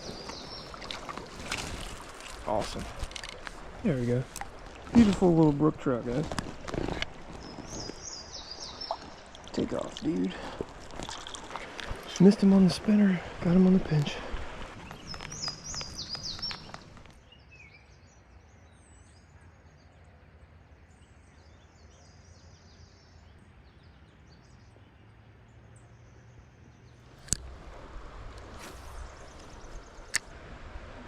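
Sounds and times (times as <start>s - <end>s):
songbirds chirping: 0.0s - 30.5s
low steady hiss: 7.0s - 31.0s.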